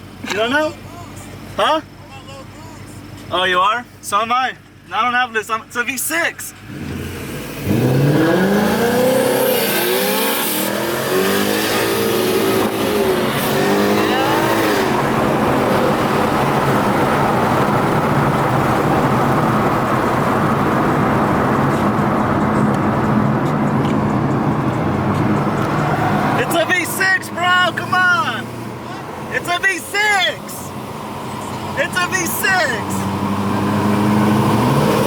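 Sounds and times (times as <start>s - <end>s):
car engine revving hard: 6.6s - 29.4s, 30.7s - 35.0s.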